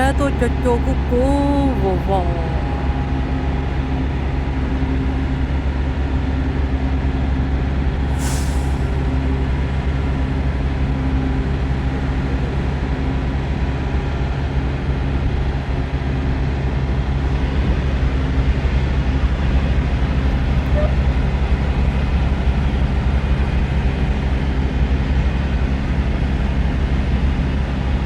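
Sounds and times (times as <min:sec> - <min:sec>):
sharp air hiss: 0:08.1 - 0:09.0.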